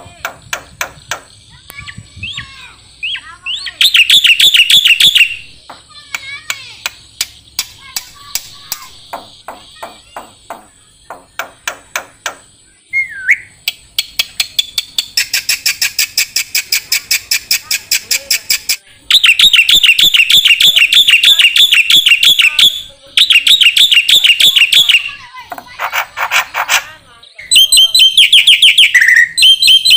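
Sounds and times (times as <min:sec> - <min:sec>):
bird warbling song: 0:00.0 - 0:05.8, 0:09.0 - 0:29.9
bird calling with sharp chips: 0:00.0 - 0:29.9
bird chattering: 0:00.0 - 0:29.9
bird whistled down-slur: 0:12.9 - 0:13.5.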